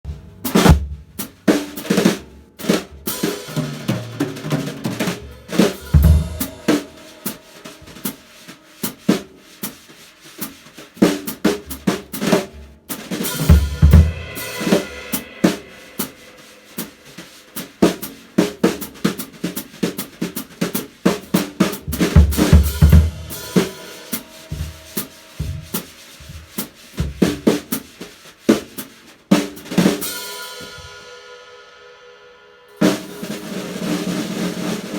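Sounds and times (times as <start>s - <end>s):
bass drum thumps: 0.0s - 1.2s, 24.5s - 27.4s
snare drum strikes: 0.4s - 30.8s
cymbal strikes: 5.2s - 8.9s, 13.2s - 18.2s, 22.6s - 25.8s, 30.0s - 33.5s.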